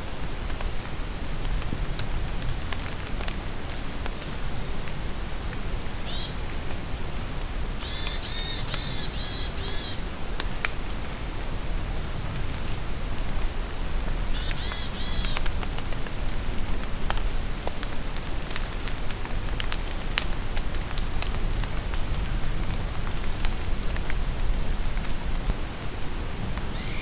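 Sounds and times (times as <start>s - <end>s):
rain falling in a forest: 0.0s - 27.0s
raindrops ticking: 14.3s - 25.7s.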